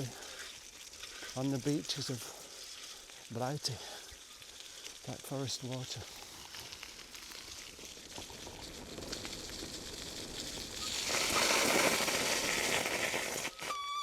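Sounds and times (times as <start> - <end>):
whistle-like tone: 13.5 - 14.0.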